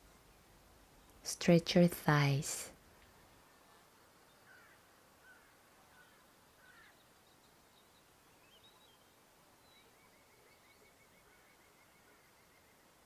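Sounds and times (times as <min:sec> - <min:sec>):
faint bird calls: 0:03.5 - 0:13.0.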